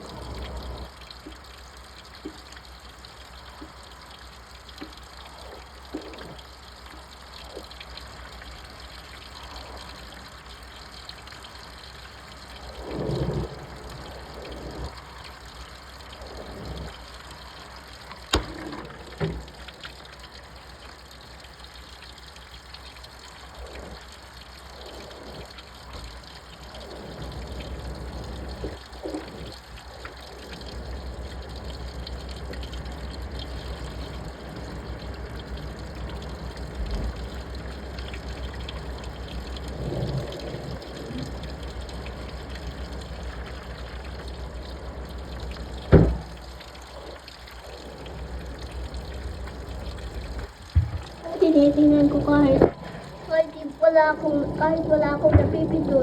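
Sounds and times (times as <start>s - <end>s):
washing machine running: 47.9s - 56.0s.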